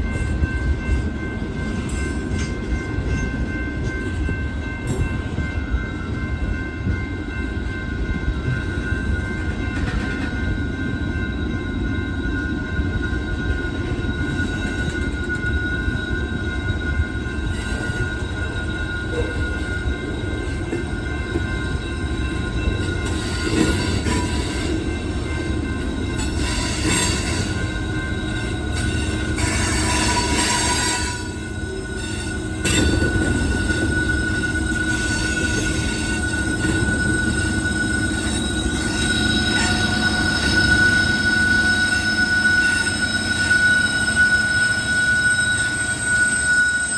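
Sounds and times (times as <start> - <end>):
high-pitched wheel squeal: 25.6 - 46.9.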